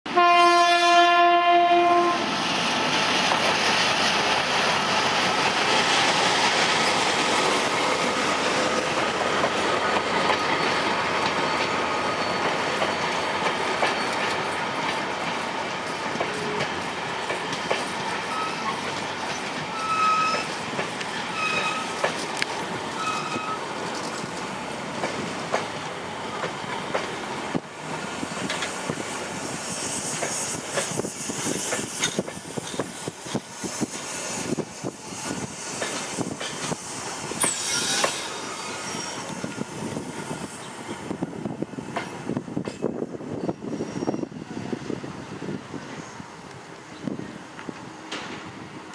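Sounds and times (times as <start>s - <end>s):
locomotive horn: 0.1s - 2.3s, 23.0s - 23.6s
train cars clattering over rails: 2.8s - 29.2s, 47.6s - 48.6s
high squeals of train braking: 5.8s - 9.2s, 9.8s - 14.8s, 17.8s - 22.3s, 22.9s - 24.4s, 28.6s - 45.0s.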